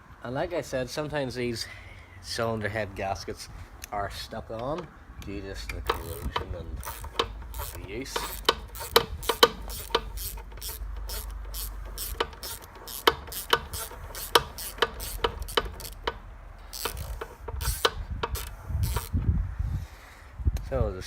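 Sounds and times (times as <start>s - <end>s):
ratchet wrench clicking: 5.6s - 19.3s.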